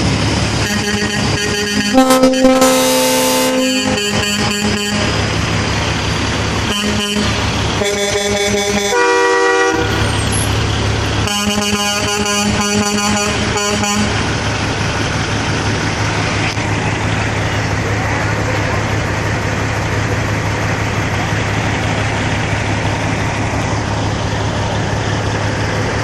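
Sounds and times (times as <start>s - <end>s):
truck horns blasting: 0.6s - 5.5s, 6.5s - 10.5s, 11.1s - 14.3s.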